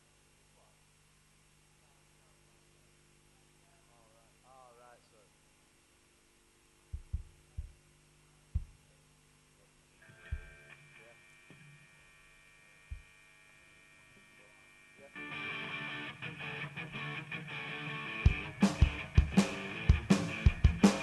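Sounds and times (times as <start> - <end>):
amplifier hum: 0.0 - 21.0
low thumps: 6.9 - 7.9, 8.5 - 8.9, 10.3 - 10.6
electric guitar chord ringing: 10.0 - 21.0
rock band playing: 15.3 - 21.0.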